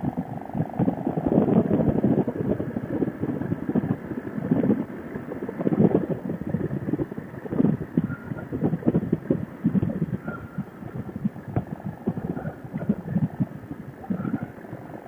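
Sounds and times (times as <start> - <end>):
motorcycle running: 0.0 - 15.0
wind buffeting microphone: 0.0 - 15.0.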